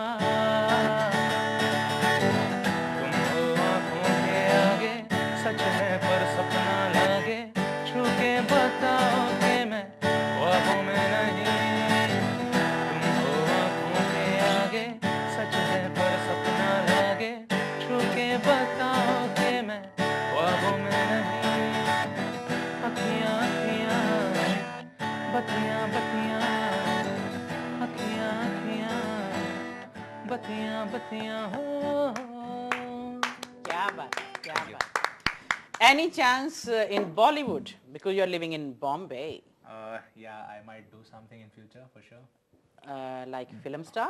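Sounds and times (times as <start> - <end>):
person singing: 0.0 - 1.7, 2.7 - 34.8
strummed acoustic guitar: 0.0 - 34.8.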